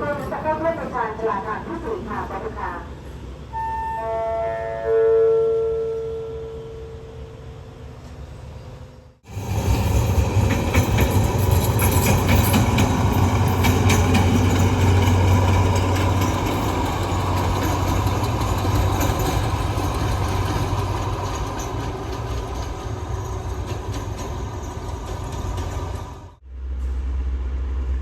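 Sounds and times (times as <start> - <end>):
diesel train engine drone: 0.0 - 28.0
train wheel clatter: 9.3 - 26.9.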